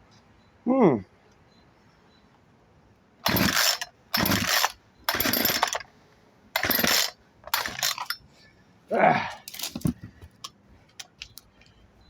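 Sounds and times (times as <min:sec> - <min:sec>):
recoil starter rasping: 0:03.2 - 0:05.8, 0:06.6 - 0:08.2
chainsaw engine turning over: 0:03.2 - 0:05.9, 0:06.6 - 0:08.2.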